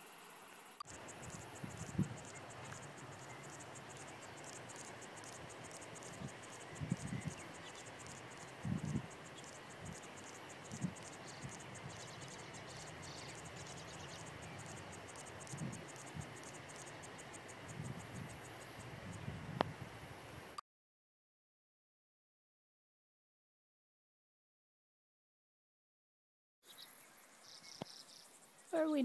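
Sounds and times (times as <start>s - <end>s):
insects chirping: 0.0s - 20.6s, 26.7s - 29.0s.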